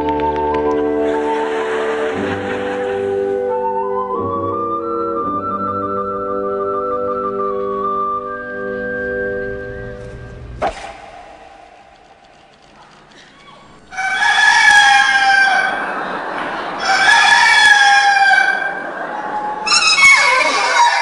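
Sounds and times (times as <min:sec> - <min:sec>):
sharp click: 0:10.6 - 0:13.6
rooster crowing: 0:13.5 - 0:16.0, 0:16.8 - 0:18.9, 0:19.6 - 0:21.0.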